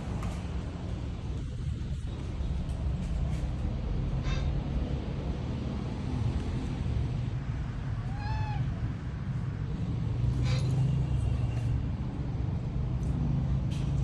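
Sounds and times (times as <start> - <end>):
cat meowing: 8.0 - 8.9.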